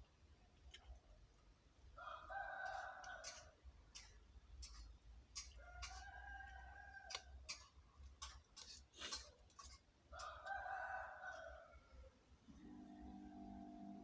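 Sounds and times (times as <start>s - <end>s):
rooster crowing: 2.0s - 3.6s, 5.5s - 7.4s, 10.1s - 12.2s.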